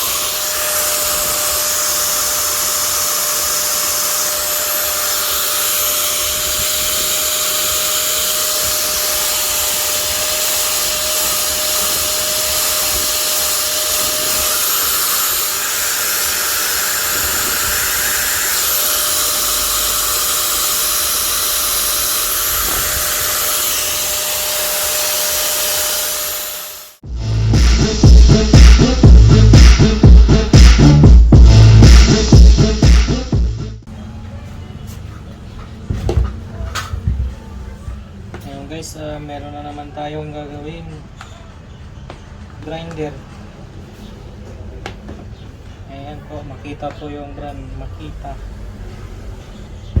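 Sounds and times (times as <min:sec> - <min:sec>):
angle grinder motor running: 0:00.0 - 0:27.0.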